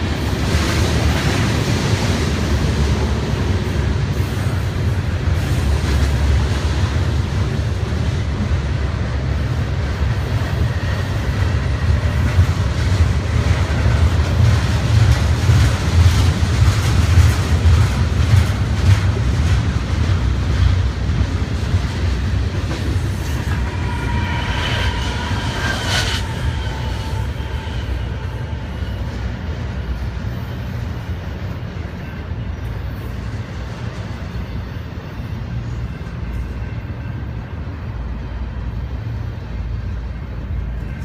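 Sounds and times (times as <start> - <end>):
freight train rumbling: 0.0 - 41.0
high-pitched squealing: 23.0 - 30.2.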